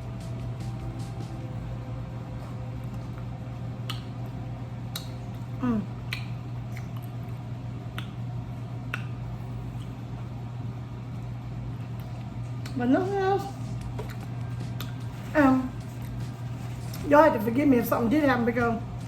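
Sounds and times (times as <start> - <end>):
steady low hum: 0.0 - 19.0
chewing and lip smacking: 2.8 - 10.3, 13.8 - 17.1.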